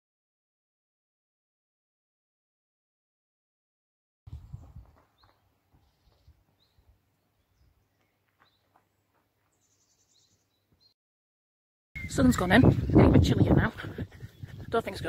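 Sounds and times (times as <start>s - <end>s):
faint bird chirps: 12.0s - 13.0s.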